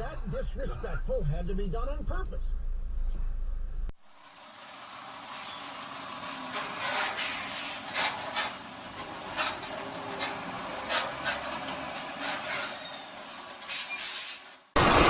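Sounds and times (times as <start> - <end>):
road traffic noise: 3.9 - 15.0
brief high squeal: 12.3 - 14.5.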